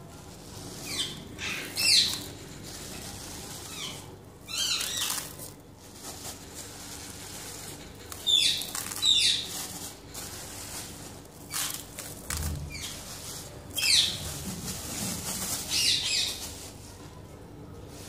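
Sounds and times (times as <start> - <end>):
pet birds chirping: 0.8 - 2.4, 3.6 - 5.5, 8.1 - 9.8, 13.7 - 14.3, 15.6 - 16.5.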